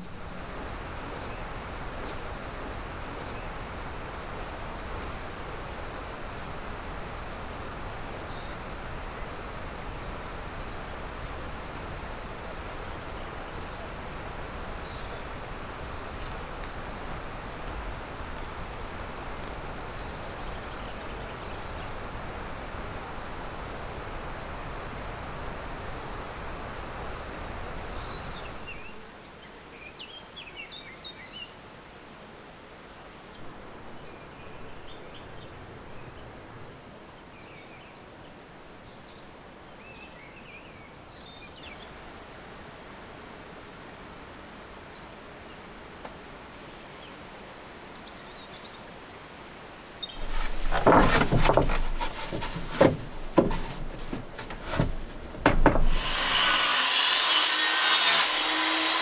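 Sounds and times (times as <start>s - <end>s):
outdoor noise: 0.0s - 1.3s, 50.0s - 59.0s.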